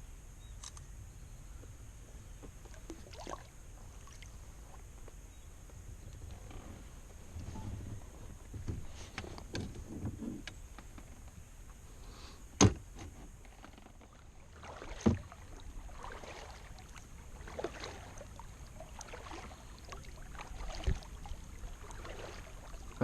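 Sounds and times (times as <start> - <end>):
kayak splashing water: 2.6 - 4.8, 8.0 - 23.0.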